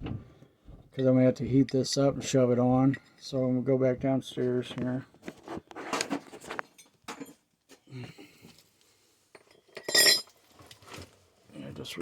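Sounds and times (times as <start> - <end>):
metal parts clinking and clattering: 9.7 - 10.8.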